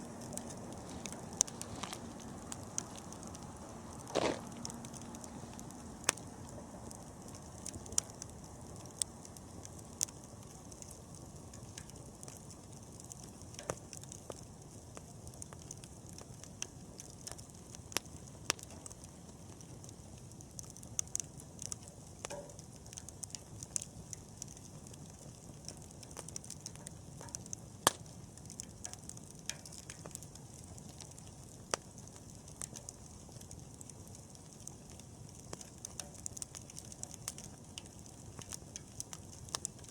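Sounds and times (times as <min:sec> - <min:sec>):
bonfire rushing: 0:00.0 - 0:39.9
fire crackles and pops: 0:00.0 - 0:39.9.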